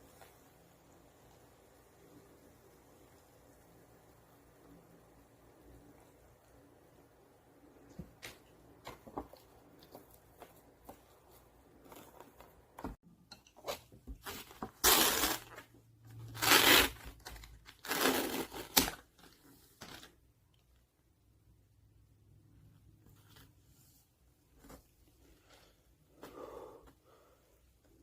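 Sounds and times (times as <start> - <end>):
packaging crinkling: 14.2 - 20.1
loud tearing rips: 14.3 - 19.1.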